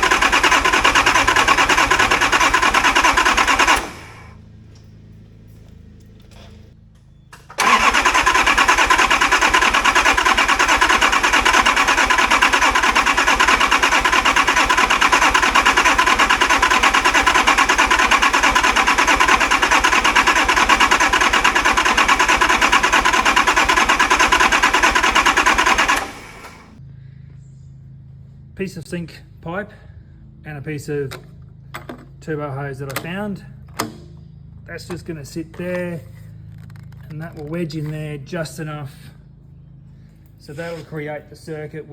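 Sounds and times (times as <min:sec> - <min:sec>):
diesel engine cranking on starter: 0:00.0 - 0:04.4, 0:07.3 - 0:26.8.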